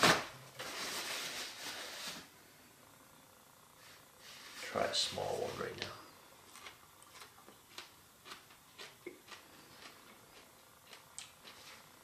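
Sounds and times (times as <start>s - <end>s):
faint crunching of chewing: 5.8s - 12.0s.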